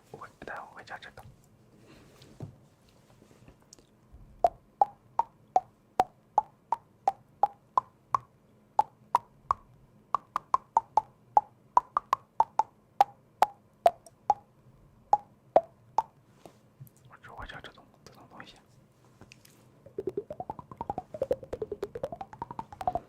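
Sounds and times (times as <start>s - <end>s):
mouth tongue clicks: 3.8s - 12.7s, 19.9s - 23.0s.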